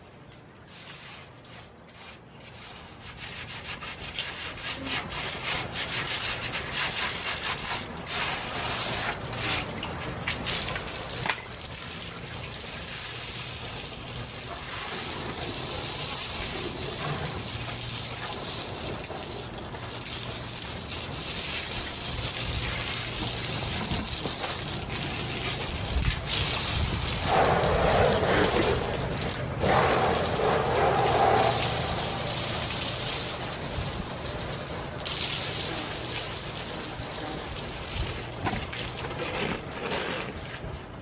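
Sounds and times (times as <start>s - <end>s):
brush scrubbing: 0.6s - 9.8s, 21.4s - 34.0s
steady rushing hiss: 24.7s - 38.4s.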